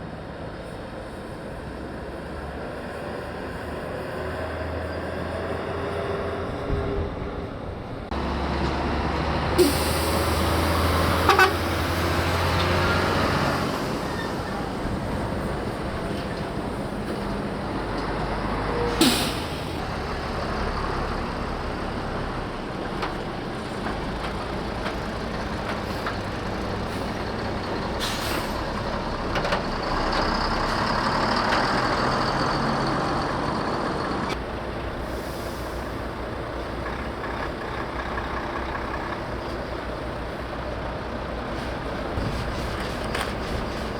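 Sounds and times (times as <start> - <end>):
heavy trucks engine drone: 0.0 - 43.9
air brake hisses: 9.6 - 10.6, 18.8 - 19.8, 28.0 - 28.7, 35.0 - 36.0.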